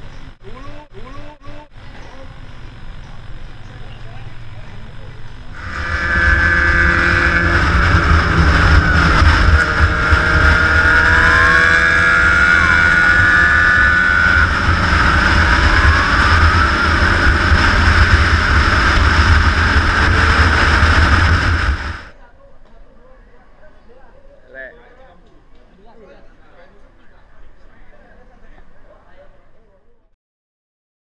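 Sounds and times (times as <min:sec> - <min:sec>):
motorcycle engines rumbling: 0:00.0 - 0:22.3.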